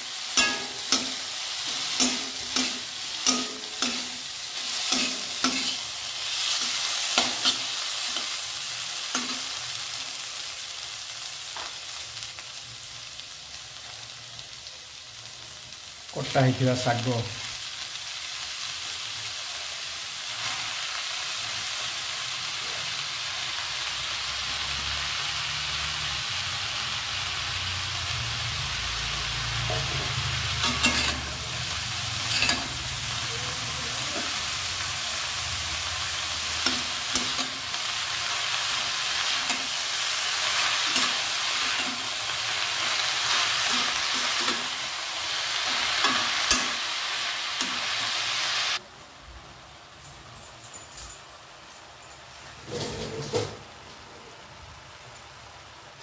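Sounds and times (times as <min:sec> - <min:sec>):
vegetables sizzling in oil: 0:00.0 - 0:50.3, 0:51.2 - 0:56.0
spatula scraping a pan: 0:29.7 - 0:31.4, 0:32.2 - 0:32.9.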